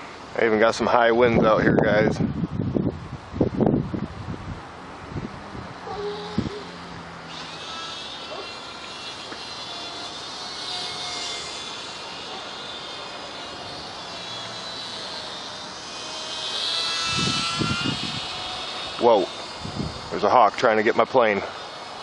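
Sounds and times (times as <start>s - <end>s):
wind noise on microphone: 1.1s - 7.2s, 16.4s - 20.3s
model plane motor whining: 5.8s - 22.0s.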